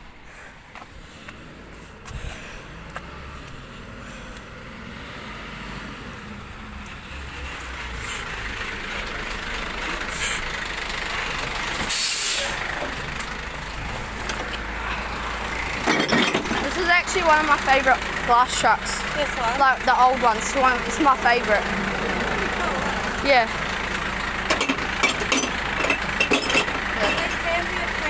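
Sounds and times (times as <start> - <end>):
truck engine running: 0.9 - 28.0.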